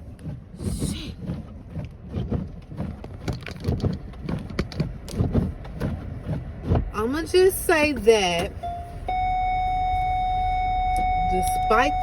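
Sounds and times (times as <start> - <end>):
low knocks and thumps: 0.0 - 8.6.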